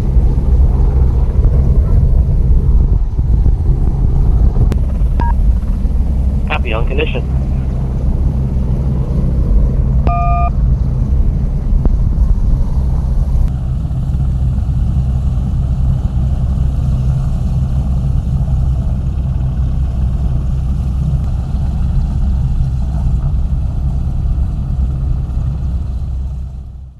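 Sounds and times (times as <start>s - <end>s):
low engine rumble: 0.0s - 26.9s
short electronic beep: 10.1s - 10.6s.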